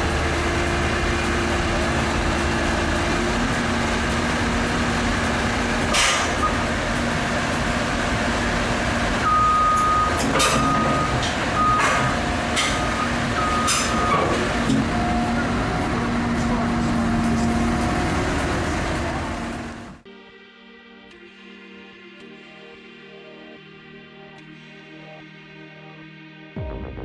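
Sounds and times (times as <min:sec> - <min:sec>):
heavy diesel machinery running: 0:00.0 - 0:20.0
warning beeper: 0:09.2 - 0:17.7.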